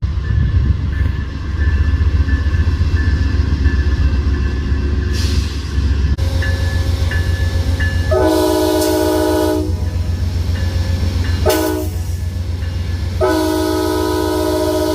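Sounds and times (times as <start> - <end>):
passenger train rumbling: 0.0 - 14.9.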